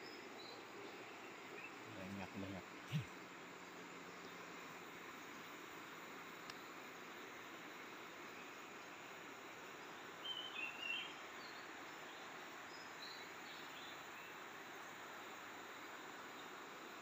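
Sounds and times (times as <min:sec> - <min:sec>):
bird chirping: 0:00.0 - 0:03.1, 0:10.2 - 0:12.2
steady forest hiss: 0:00.0 - 0:17.0.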